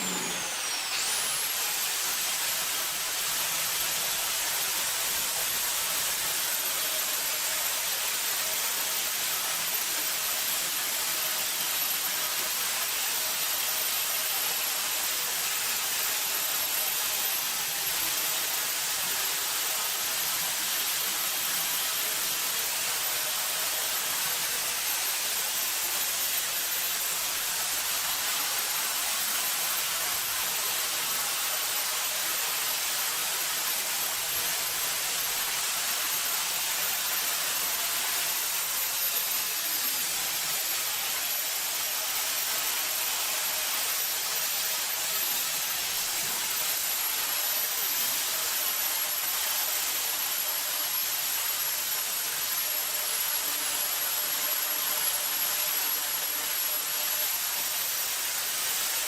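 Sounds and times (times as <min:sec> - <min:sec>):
power tool motor whining: 0:00.0 - 0:02.3.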